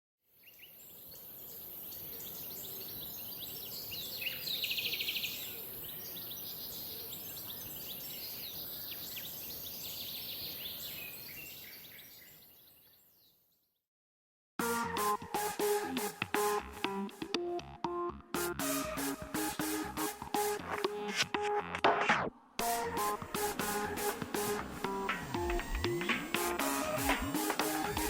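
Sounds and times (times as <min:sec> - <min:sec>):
small birds chirping: 0:00.4 - 0:13.8.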